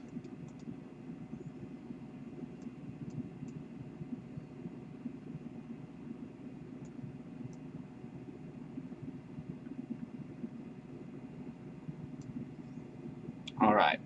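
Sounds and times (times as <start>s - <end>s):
low room rumble: 0.0s - 14.0s.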